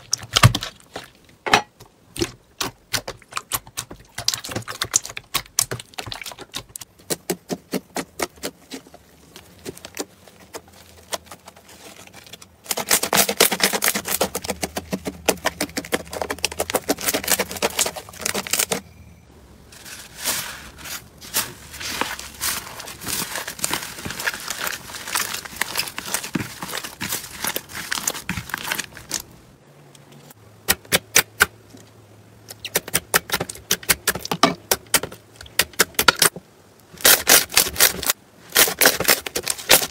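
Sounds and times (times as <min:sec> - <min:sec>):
slime crackling and popping: 0:02.2 - 0:08.8, 0:09.6 - 0:18.8, 0:20.3 - 0:29.3.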